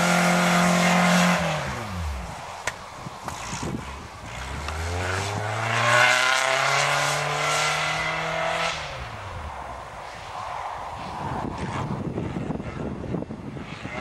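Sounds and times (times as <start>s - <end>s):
car engine accelerating: 3.4s - 9.9s.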